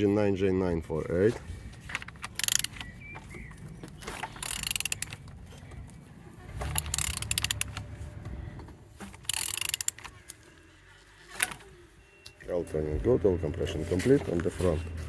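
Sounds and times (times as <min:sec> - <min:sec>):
ratchet wrench clicking: 0:02.0 - 0:02.9, 0:04.3 - 0:05.2, 0:06.6 - 0:07.9, 0:09.2 - 0:10.1.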